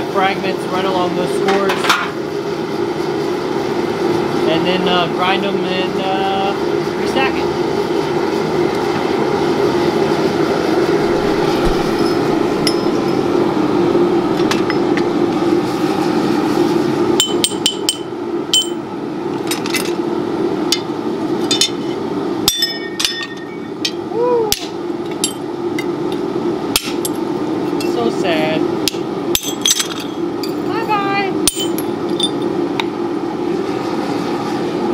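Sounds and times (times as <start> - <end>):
steady hum: 0.0 - 34.9
hammer striking steel on anvil: 12.0 - 13.2, 17.2 - 18.8, 22.5 - 24.6, 31.5 - 32.4.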